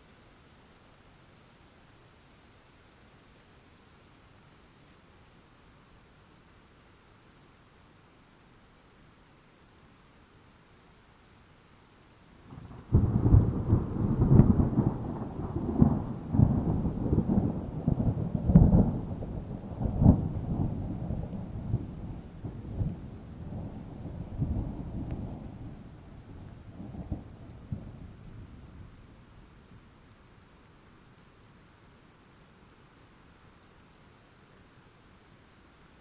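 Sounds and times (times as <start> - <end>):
faint steady rain: 0.0 - 36.0
thunder rumbling and cracking: 12.5 - 29.2.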